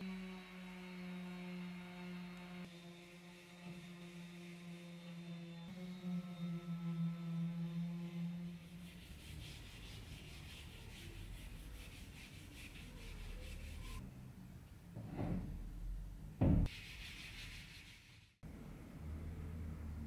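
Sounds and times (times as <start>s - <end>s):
rubbing strokes on wood: 7.1s - 14.0s, 16.7s - 18.4s.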